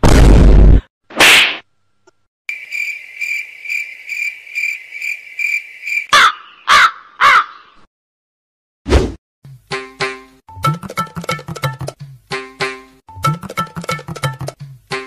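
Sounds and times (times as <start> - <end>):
cricket chirping: 2.5 - 6.1
crow cawing: 6.1 - 7.8.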